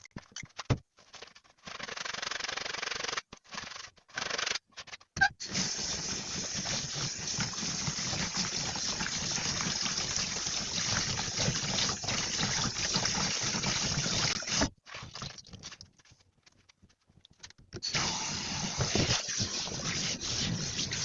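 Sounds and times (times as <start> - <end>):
tap running water: 5.4 - 15.8, 17.8 - 21.0.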